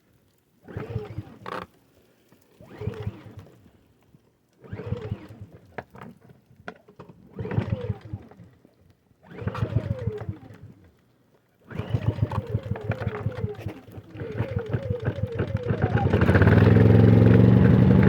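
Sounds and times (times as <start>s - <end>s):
pull cord engine cranking: 7.4s - 8.2s, 9.2s - 10.7s, 11.7s - 18.0s.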